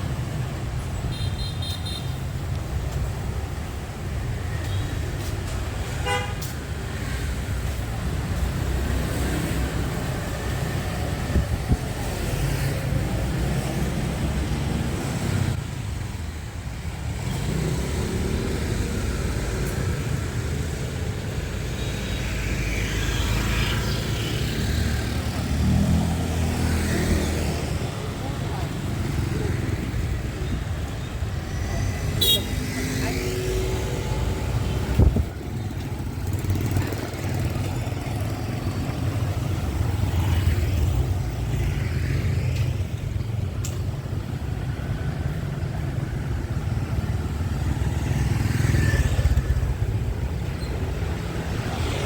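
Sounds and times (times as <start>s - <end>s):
passing vehicles rumbling: 0.0s - 52.0s
vehicle horn toot: 6.0s - 6.4s, 32.2s - 32.6s.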